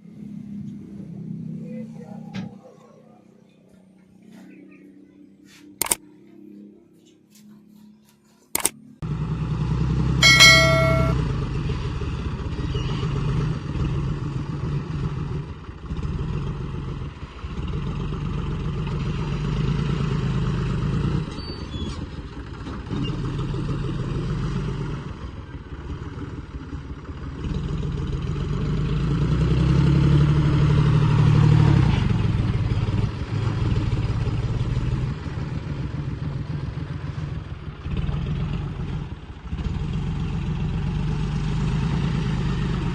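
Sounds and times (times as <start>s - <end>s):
short horn beep: 10.2s - 11.2s
diesel engine of heavy machinery: 11.2s - 42.9s.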